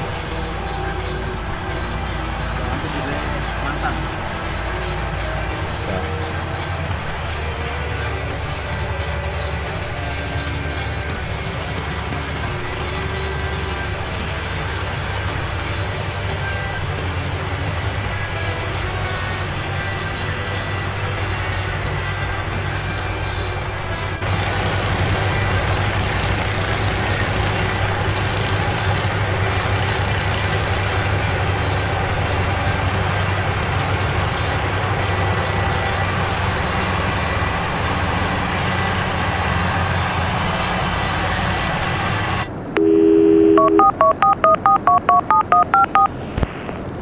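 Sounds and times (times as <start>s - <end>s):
combine harvester engine running: 0.0s - 47.0s
telephone dial tone: 42.8s - 46.1s
touch-tone dialing beeps: 42.9s - 46.1s.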